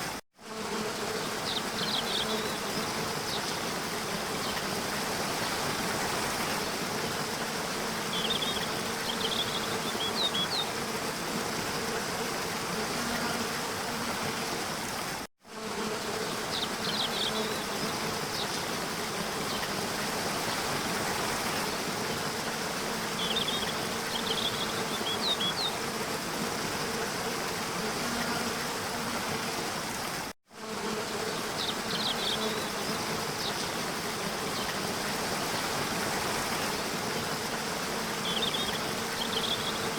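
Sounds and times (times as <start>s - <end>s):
small birds chirping: 8.1s - 10.7s, 38.2s - 39.9s.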